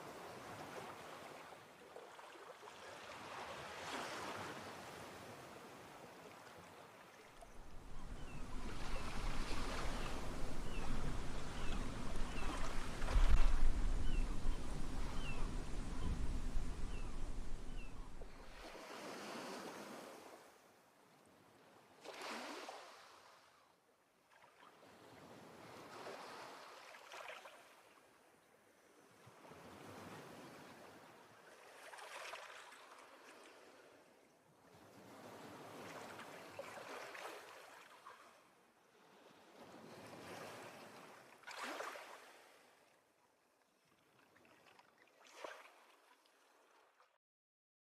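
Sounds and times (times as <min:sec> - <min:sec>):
small waves washing on shore: 0:00.0 - 0:20.5, 0:22.0 - 0:23.5, 0:29.3 - 0:34.1, 0:34.7 - 0:42.8, 0:44.1 - 0:47.0.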